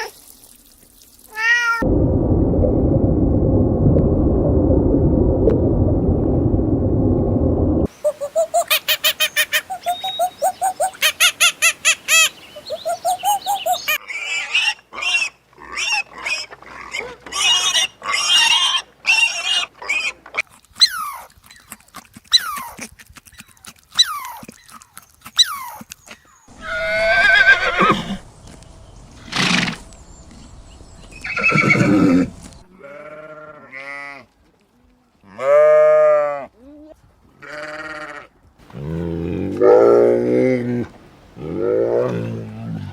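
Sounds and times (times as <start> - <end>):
farm animal calls: 7.9 - 20.2
goat bleating: 32.7 - 34.2, 37.4 - 38.3.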